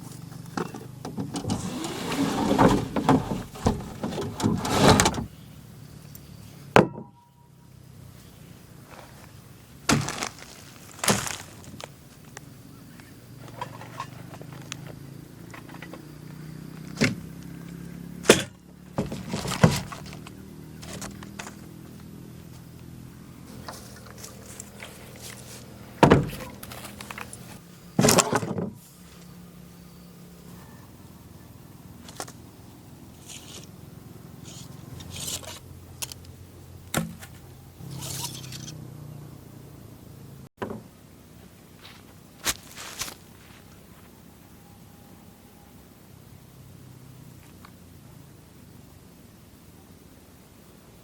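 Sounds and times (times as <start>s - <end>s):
camping gear scraping and rubbing: 1.4s - 5.3s, 10.0s - 11.9s, 13.4s - 14.7s, 19.0s - 21.7s, 23.5s - 29.3s, 33.2s - 33.7s, 34.4s - 35.6s, 37.8s - 38.8s.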